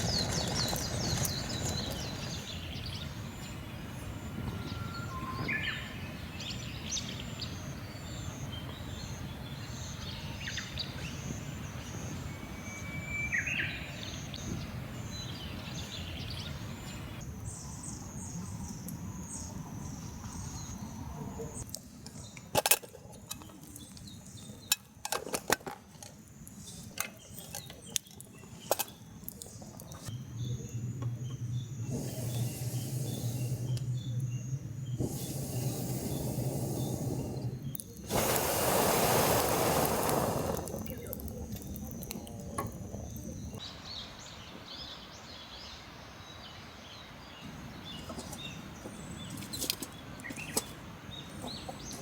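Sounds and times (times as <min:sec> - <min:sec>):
insects chirping: 0:28.4 - 0:51.4.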